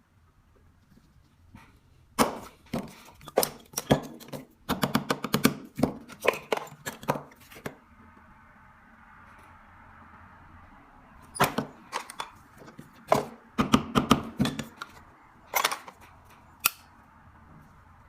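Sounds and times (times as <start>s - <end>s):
metal parts knocking: 14.0s - 16.0s.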